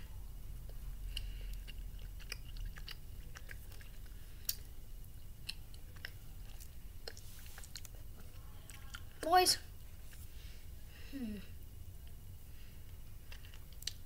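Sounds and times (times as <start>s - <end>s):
person chewing candy: 0.6s - 9.2s, 12.9s - 14.0s
mouth clicks and smacks: 13.3s - 14.0s.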